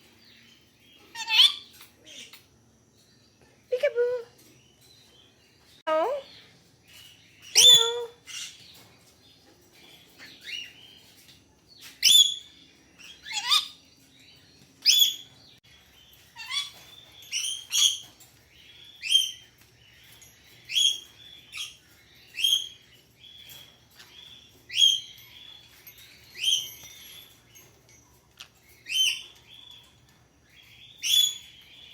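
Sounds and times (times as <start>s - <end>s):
parrot chirping calls: 1.0s - 2.5s, 7.4s - 8.6s, 12.0s - 13.9s, 16.1s - 30.0s, 30.6s - 31.9s.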